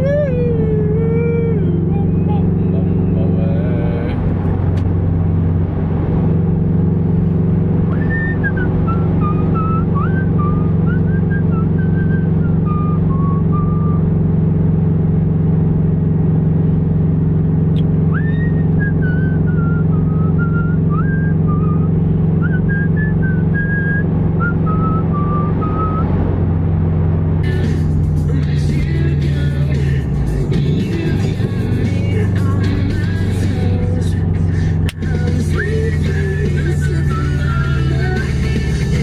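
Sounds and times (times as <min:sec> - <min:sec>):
car engine drone and road noise: 0:00.0 - 0:39.0
person whistling a tune: 0:07.9 - 0:14.0, 0:18.1 - 0:26.1, 0:36.8 - 0:38.2.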